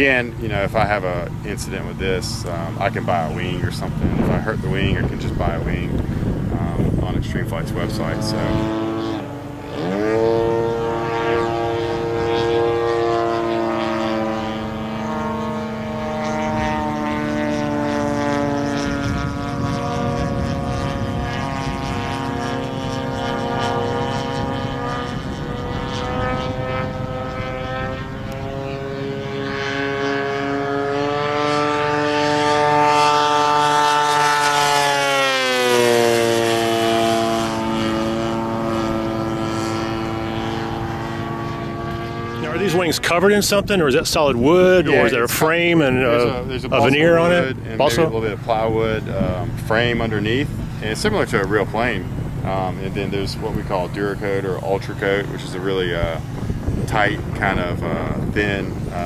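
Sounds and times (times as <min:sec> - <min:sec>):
model airplane engine buzzing: 0:00.0 - 0:59.0.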